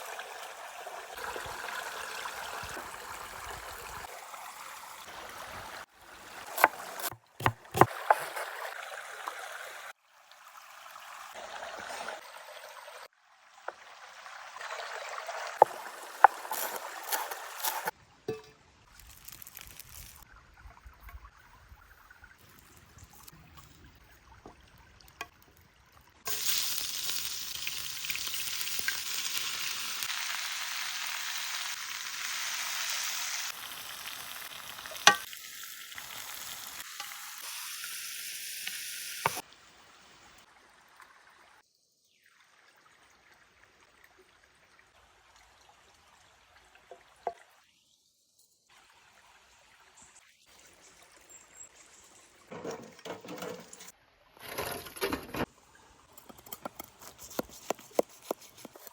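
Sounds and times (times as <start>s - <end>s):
food sizzling in a pan: 26.3s - 39.4s.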